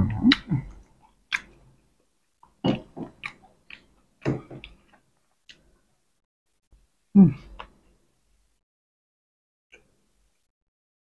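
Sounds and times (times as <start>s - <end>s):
person chewing and lip-smacking: 0.0s - 1.7s, 2.4s - 4.0s.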